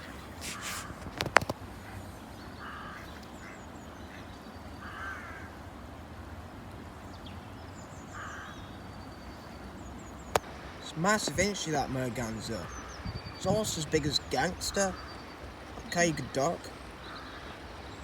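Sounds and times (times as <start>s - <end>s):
ducks quacking: 10.8s - 17.6s.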